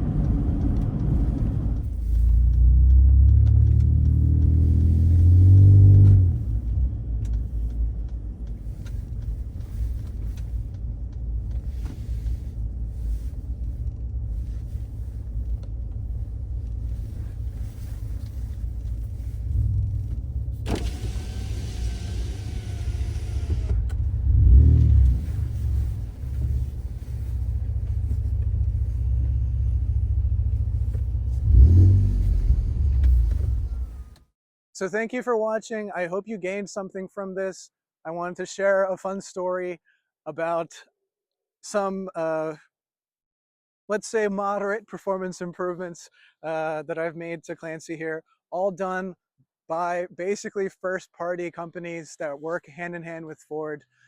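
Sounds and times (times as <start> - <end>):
pickup truck engine accelerating: 0.0 - 8.9, 19.2 - 34.1.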